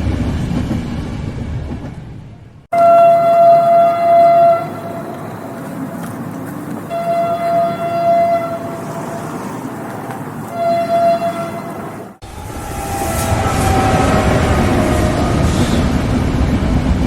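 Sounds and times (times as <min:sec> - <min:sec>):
train rumbling: 0:00.0 - 0:17.0
train horn blasts: 0:02.7 - 0:05.3, 0:06.9 - 0:09.6, 0:10.5 - 0:15.9.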